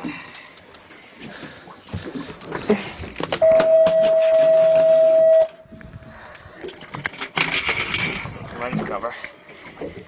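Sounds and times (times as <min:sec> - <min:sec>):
steady electronic beep: 0:03.4 - 0:05.6.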